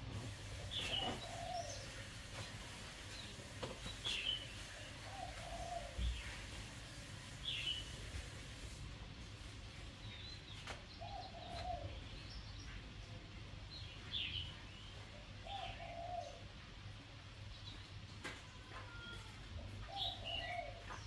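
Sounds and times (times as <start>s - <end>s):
low bird cooing: 0.3s - 2.3s, 4.9s - 6.5s, 11.0s - 12.2s, 15.2s - 16.6s, 18.9s - 21.0s.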